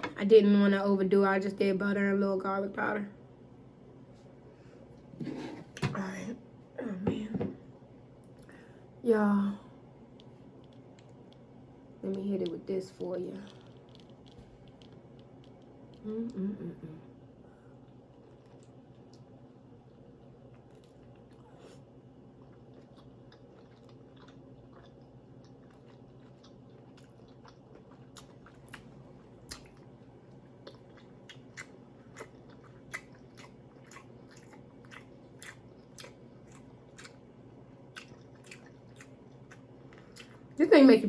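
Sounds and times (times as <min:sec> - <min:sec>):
person chewing and lip-smacking: 0:17.9 - 0:29.9, 0:30.6 - 0:37.3, 0:37.9 - 0:40.6.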